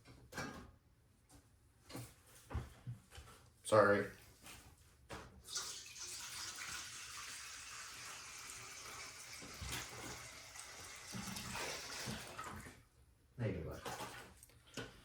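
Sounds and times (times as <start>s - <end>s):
tap water filling a bowl: 5.5s - 12.8s.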